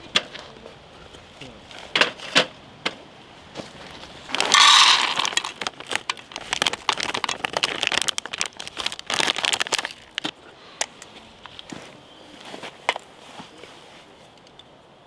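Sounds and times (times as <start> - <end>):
camping gear crinkling and rustling: 3.5 - 14.5.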